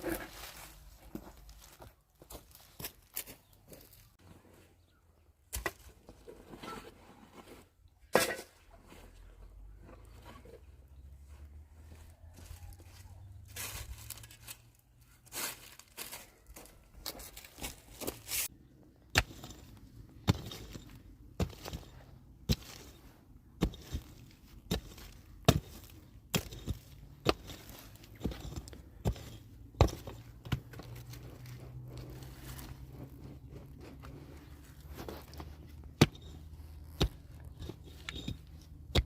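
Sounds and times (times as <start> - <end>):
hand tool striking wood or earth: 19.0 - 39.0.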